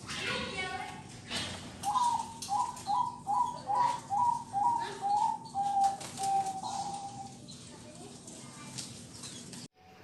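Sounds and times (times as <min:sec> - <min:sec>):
dove cooing: 0:01.8 - 0:07.4.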